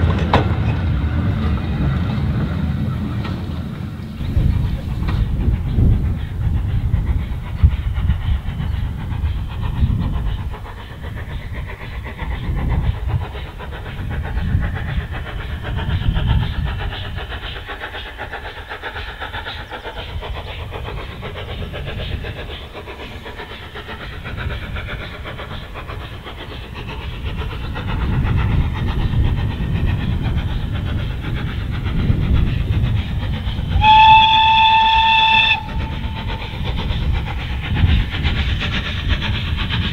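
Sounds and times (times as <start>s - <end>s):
steam locomotive rumble: 0.0s - 39.9s
steam whistle: 33.8s - 36.0s.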